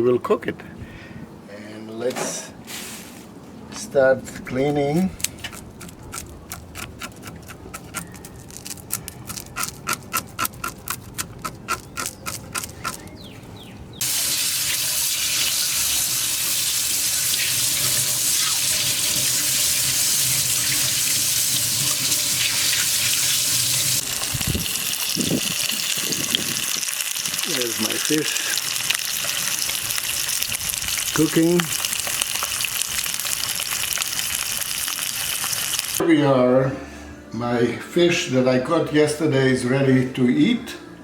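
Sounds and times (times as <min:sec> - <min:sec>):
kitchen tap running into sink: 0:14.0 - 0:24.1.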